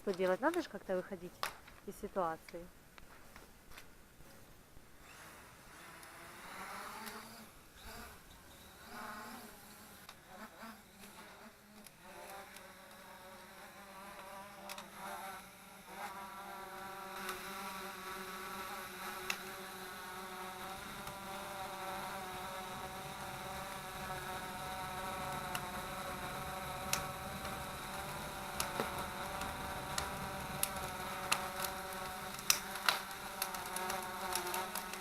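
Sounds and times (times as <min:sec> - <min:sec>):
quadcopter propellers buzzing: 0:05.0 - 0:35.0
sharp clicks: 0:28.6 - 0:35.0.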